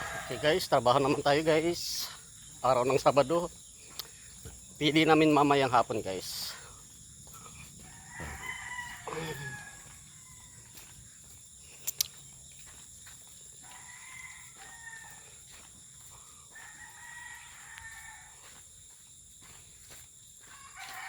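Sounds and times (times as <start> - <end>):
roosters crowing faintly: 6.3 - 11.0.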